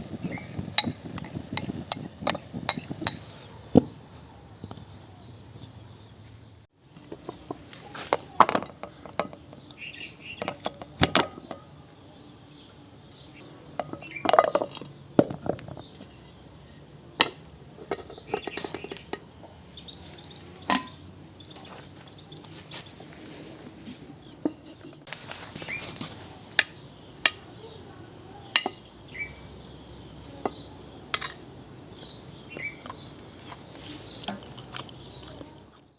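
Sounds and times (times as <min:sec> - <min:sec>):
dishes and utensils clinking: 0:00.2 - 0:03.4, 0:17.2 - 0:19.3, 0:20.6 - 0:21.0, 0:28.5 - 0:28.8, 0:30.4 - 0:31.4.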